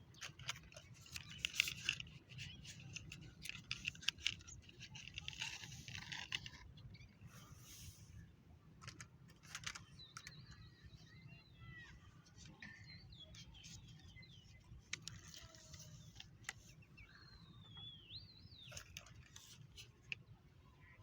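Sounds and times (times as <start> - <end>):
faint bird chirps: 9.4 - 21.0.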